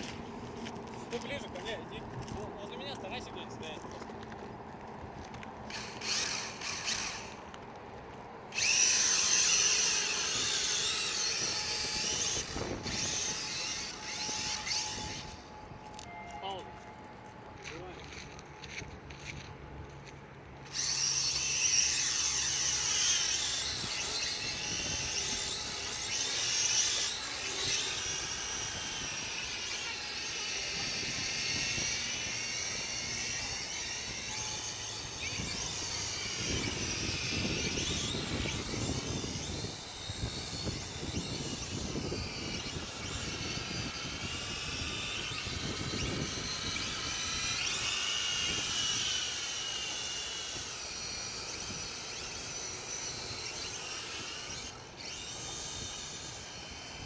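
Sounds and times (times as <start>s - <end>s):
drone motors whining: 0.0s - 57.0s
wind rumbling on microphone: 8.5s - 15.9s, 23.3s - 49.5s.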